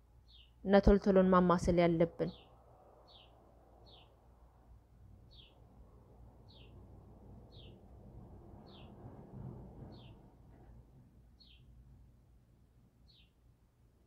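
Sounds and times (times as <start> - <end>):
low background noise: 0.0 - 14.0
bird chirping: 0.2 - 0.6, 2.2 - 4.2, 5.3 - 5.7, 6.4 - 6.8, 7.5 - 7.8, 8.6 - 9.0, 9.9 - 10.2, 11.4 - 11.7, 13.0 - 13.4.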